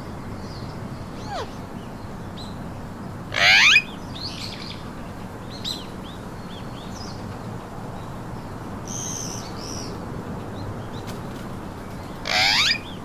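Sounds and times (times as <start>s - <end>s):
parakeet chirps: 1.2s - 1.6s, 3.4s - 4.7s, 12.3s - 13.0s
parakeet screech: 1.2s - 1.6s, 3.4s - 3.8s, 12.3s - 12.8s.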